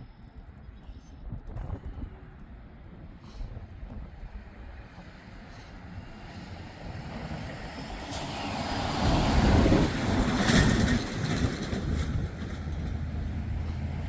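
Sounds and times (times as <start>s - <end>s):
road vehicle passing by: 3.3s - 14.0s.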